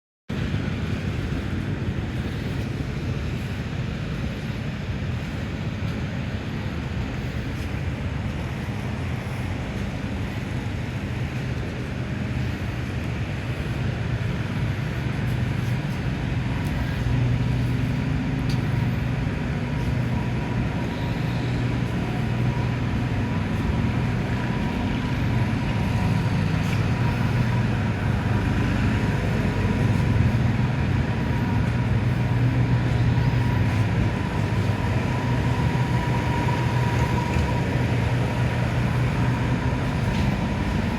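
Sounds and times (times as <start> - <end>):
thin steady whine: 0.3 - 40.9
garden tractor engine running: 11.6 - 40.9.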